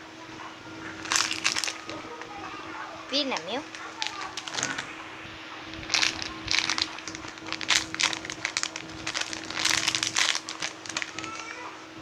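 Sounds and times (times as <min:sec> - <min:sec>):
faint electrical hum: 0:00.0 - 0:12.0
plastic packaging crinkling: 0:00.9 - 0:02.6, 0:03.2 - 0:05.0, 0:05.7 - 0:11.7.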